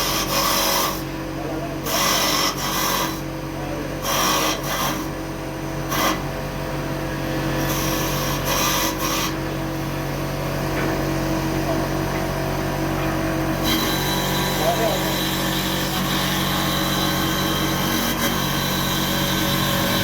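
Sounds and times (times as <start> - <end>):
wood lathe motor hum: 0.0 - 1.1, 1.8 - 3.2, 4.0 - 5.2, 12.5 - 20.0.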